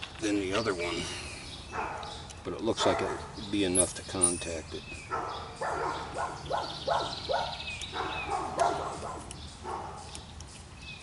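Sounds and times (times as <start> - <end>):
dogs barking: 1.7 - 3.8, 5.0 - 10.2.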